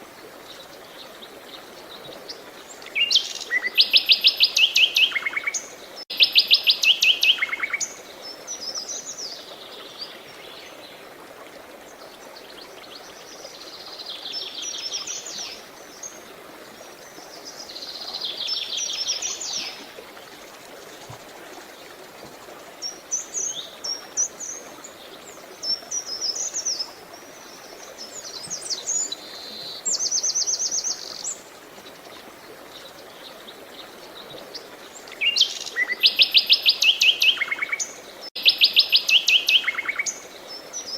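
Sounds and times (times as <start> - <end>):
running water hiss: 0.0 - 40.9
songbirds singing: 11.9 - 40.9.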